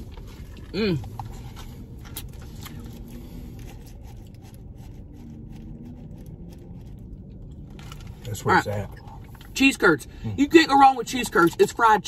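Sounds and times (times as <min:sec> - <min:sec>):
soft chewing: 0:00.0 - 0:09.6.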